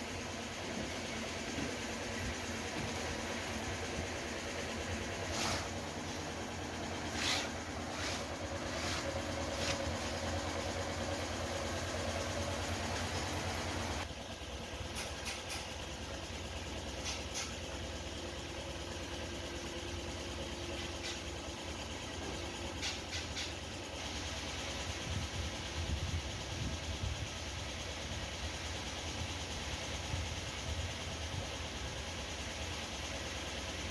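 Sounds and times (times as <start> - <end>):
machinery humming: 0.0 - 14.0
sharp clicks and knocks: 14.9 - 15.8.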